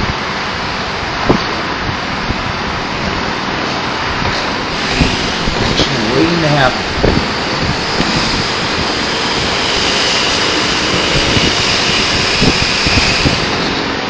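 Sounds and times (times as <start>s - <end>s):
aircraft engine droning: 0.0s - 14.0s
wind buffeting microphone: 0.0s - 14.0s.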